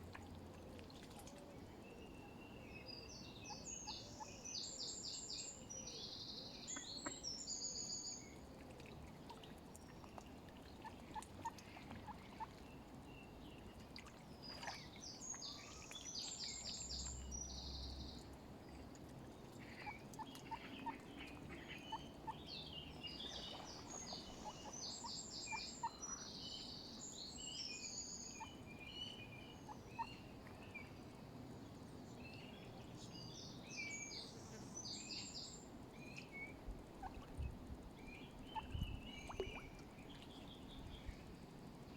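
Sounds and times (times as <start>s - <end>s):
faint short bird pips: 38.5s - 40.3s.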